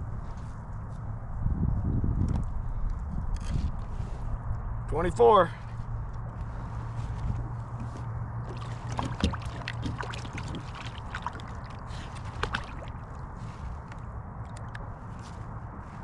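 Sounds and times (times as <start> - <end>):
steady low rumble: 0.0 - 16.0
water sloshing against kayak hull: 7.7 - 14.0.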